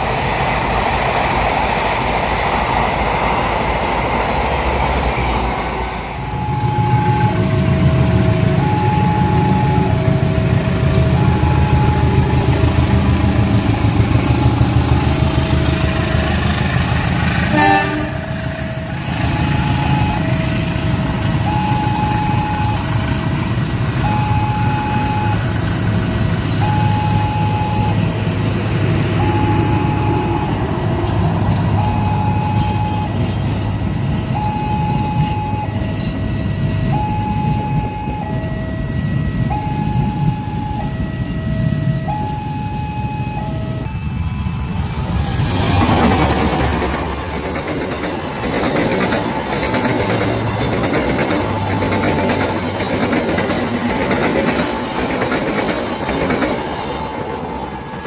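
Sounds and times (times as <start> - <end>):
passing train rumble: 0.0 - 58.0
level crossing alarm two-tone: 6.3 - 12.5, 18.5 - 20.7, 21.4 - 23.0, 24.0 - 25.5, 26.6 - 28.1, 29.2 - 30.6, 31.8 - 33.2, 34.4 - 44.7.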